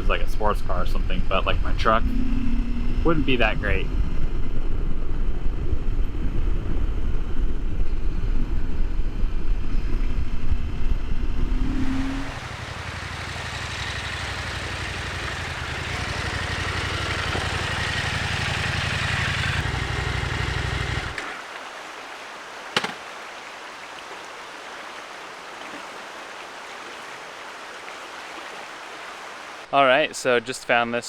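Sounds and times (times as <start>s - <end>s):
motorcycle engine running: 10.9s - 21.4s
stream rushing: 11.6s - 29.7s
sharp knock: 22.8s - 23.0s.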